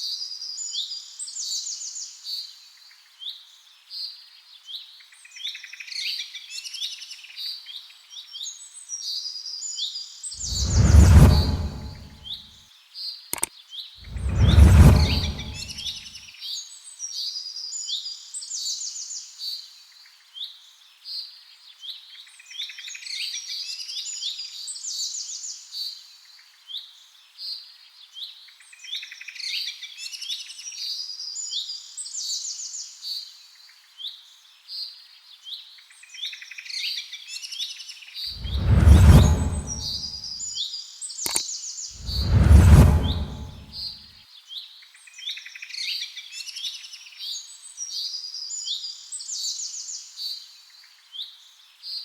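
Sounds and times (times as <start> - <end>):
loud low whoosh: 10.4 - 12.2, 14.1 - 15.8, 38.4 - 40.1, 42.0 - 43.8.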